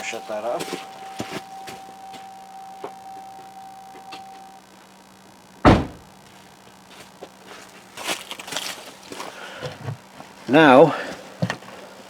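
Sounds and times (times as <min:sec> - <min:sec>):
steady tone: 0:00.0 - 0:06.2
car door thump: 0:05.6 - 0:06.1.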